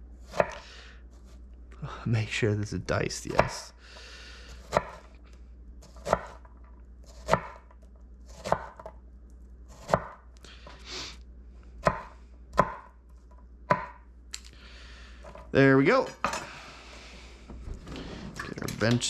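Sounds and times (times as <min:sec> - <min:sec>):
knife chopping on cutting board: 0:00.3 - 0:00.6, 0:03.4 - 0:03.6, 0:04.6 - 0:05.1, 0:05.8 - 0:06.5, 0:07.1 - 0:07.7, 0:08.3 - 0:08.9, 0:09.7 - 0:10.2, 0:11.8 - 0:12.9, 0:13.7 - 0:14.0.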